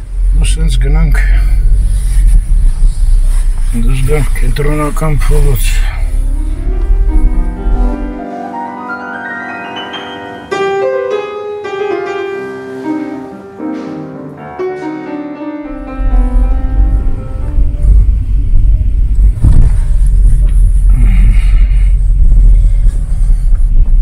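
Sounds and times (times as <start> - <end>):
low rumble: 0.0 - 8.5, 15.6 - 24.0
piano music: 4.9 - 20.1.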